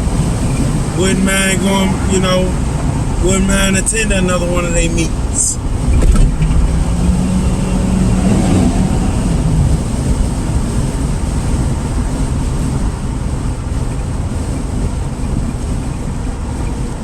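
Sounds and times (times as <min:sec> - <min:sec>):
low steady drone: 0:00.0 - 0:12.0
car road and engine rumble: 0:00.0 - 0:17.0.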